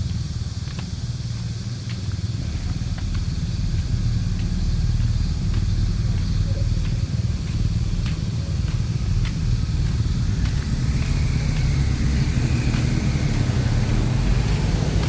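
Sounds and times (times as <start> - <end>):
footsteps walking: 0.0 - 15.0
road traffic rumble: 0.0 - 15.0.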